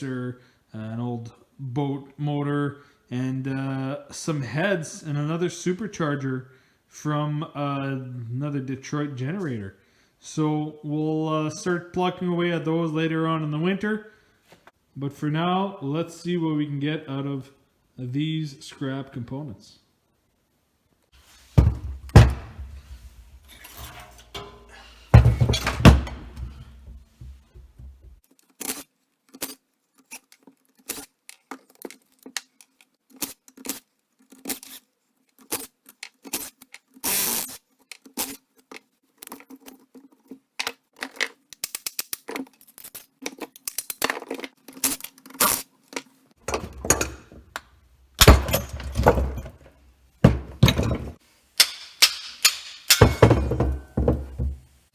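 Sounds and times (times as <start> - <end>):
heavy metal thuds: 21.5 - 28.2, 46.4 - 47.6, 48.2 - 54.7
metal clanks and clinks: 21.6 - 28.2, 46.4 - 54.6.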